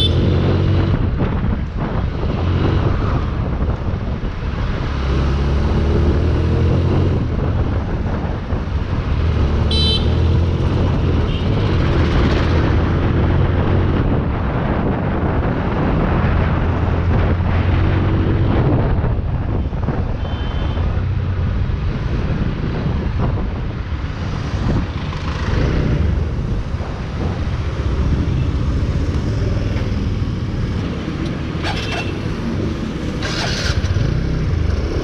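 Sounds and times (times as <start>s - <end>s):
road traffic passing: 0.0s - 35.0s
vehicle horn toot: 9.7s - 10.2s, 20.2s - 20.8s.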